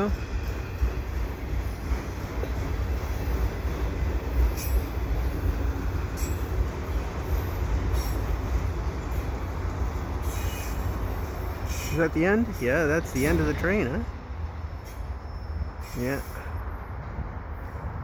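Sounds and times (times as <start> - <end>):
freight train cars rumbling: 0.0 - 18.0
high wheel squeals: 4.4 - 5.1, 10.2 - 13.7, 14.8 - 16.6.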